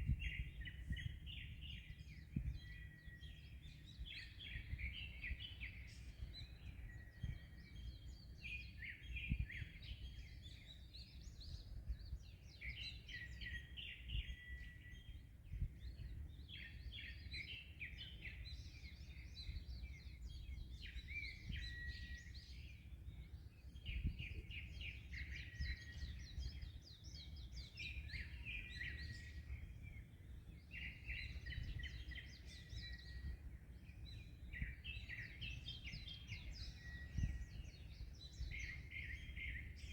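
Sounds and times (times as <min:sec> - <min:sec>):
small birds chirping: 0:00.0 - 0:39.9
wind: 0:00.0 - 0:39.9.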